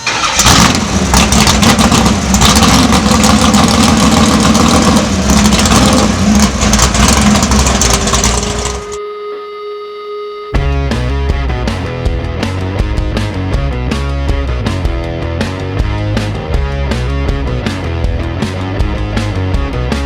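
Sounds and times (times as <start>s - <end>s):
vehicle engine revving roughly: 0.0s - 9.0s.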